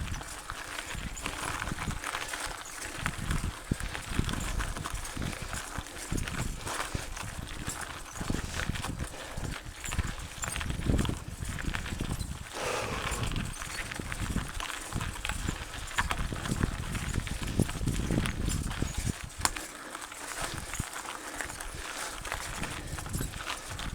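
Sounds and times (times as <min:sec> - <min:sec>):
bike knocking and rattling: 0:00.0 - 0:12.5, 0:13.1 - 0:19.7.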